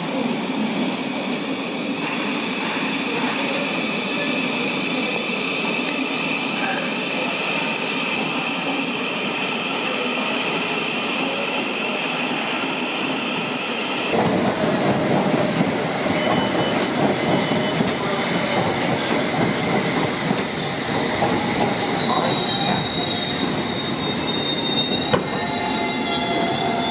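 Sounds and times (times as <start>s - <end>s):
train wheels rumbling on track: 14.1s - 26.9s
train wheel squeal: 15.7s - 26.9s
electric train high-pitched tones: 21.2s - 26.9s.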